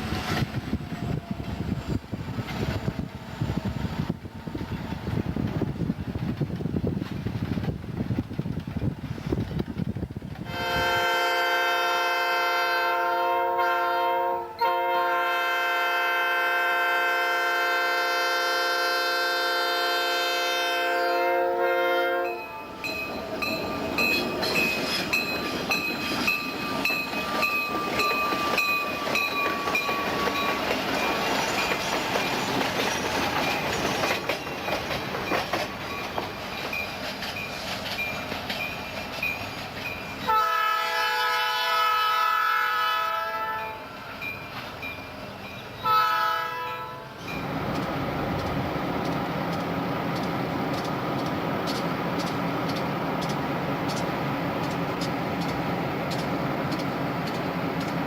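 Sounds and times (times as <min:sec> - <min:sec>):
train wheels clacking on rails: 0:00.0 - 0:11.0, 0:21.8 - 0:40.4, 0:47.2 - 0:58.0
train air horn: 0:10.4 - 0:22.8, 0:40.2 - 0:43.9, 0:45.8 - 0:47.2.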